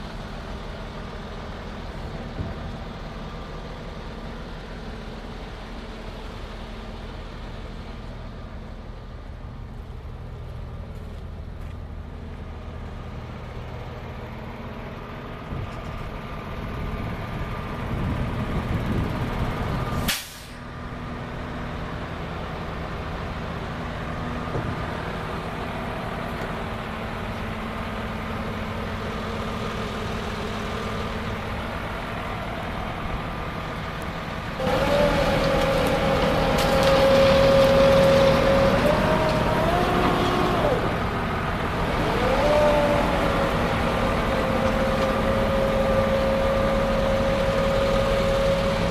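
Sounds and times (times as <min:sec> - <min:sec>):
diesel truck engine running: 0:00.0 - 0:48.9
air brake release burst: 0:20.0 - 0:20.7.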